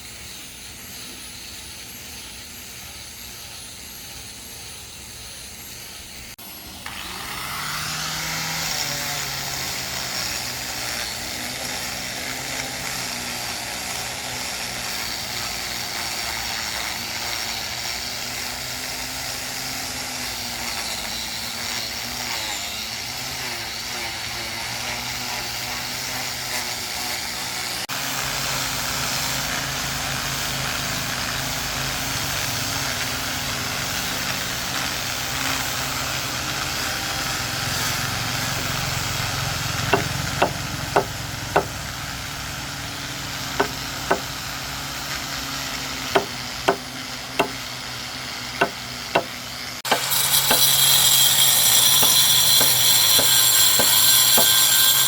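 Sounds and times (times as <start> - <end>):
power tool whining: 0.0 - 55.0
scraping on wood: 39.8 - 41.8, 43.5 - 44.4, 46.1 - 47.7, 48.6 - 55.0
sharp knocks on wood: 39.9 - 41.7, 43.6 - 44.3, 46.2 - 46.8, 48.6 - 49.3.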